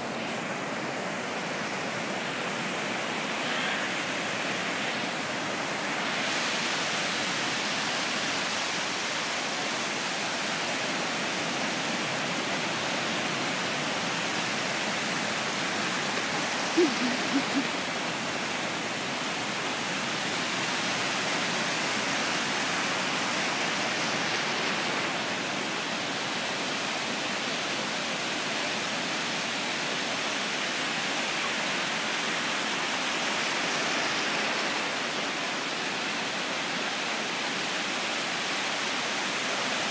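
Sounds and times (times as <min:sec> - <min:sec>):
ocean surf: 0:00.0 - 0:39.9.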